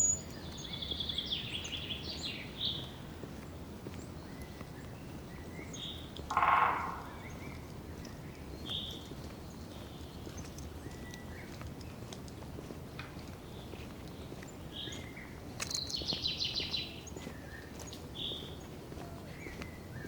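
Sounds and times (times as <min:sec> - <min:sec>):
birds chirping: 0:00.0 - 0:20.0
footsteps on dirt trail: 0:00.3 - 0:20.0
bird rapid trill: 0:06.3 - 0:07.4.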